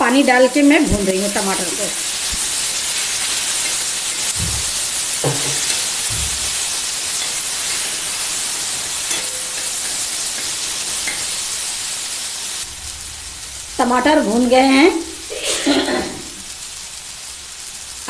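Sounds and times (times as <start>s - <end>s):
tomatoes sizzling on a hot pan: 0.0s - 18.0s
steel spatula knocking on a pan: 3.6s - 6.6s.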